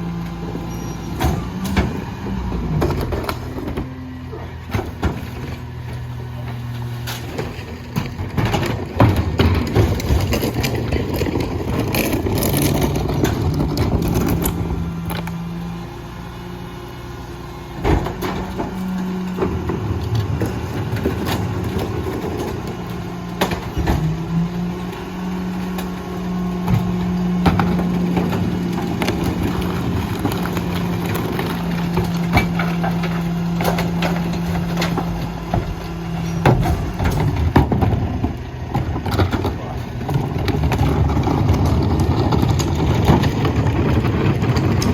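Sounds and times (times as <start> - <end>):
garbage truck diesel engine: 0.0 - 44.9
packer compacting refuse: 0.0 - 44.9
clanks and knocks: 2.8 - 15.4, 25.6 - 44.9.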